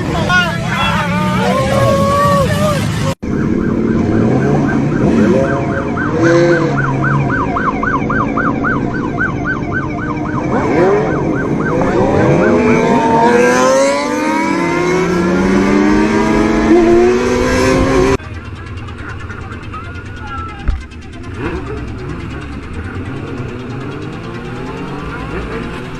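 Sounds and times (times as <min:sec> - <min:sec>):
vehicle engines revving: 0:00.0 - 0:25.9
police siren yelping: 0:00.6 - 0:18.2.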